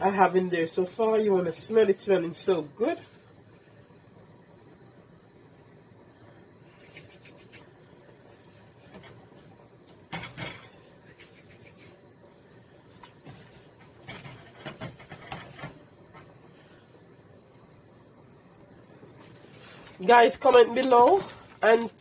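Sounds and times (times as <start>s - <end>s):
pot knocks and clatters: 10.1s - 10.8s, 13.2s - 16.3s.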